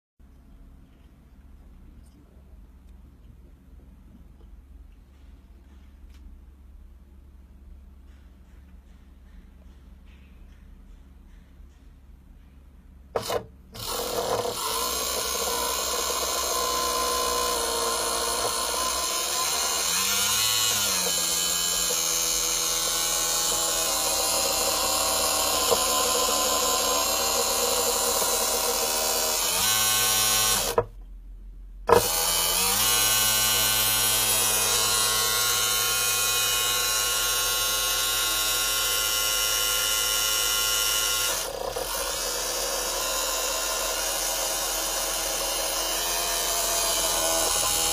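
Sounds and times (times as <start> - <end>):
electric pump whining: 13.2 - 31.0, 31.9 - 47.9.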